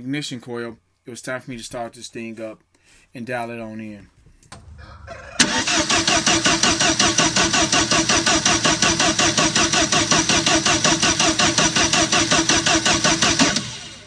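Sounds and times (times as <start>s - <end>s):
engine cranking on starter: 4.5s - 14.0s.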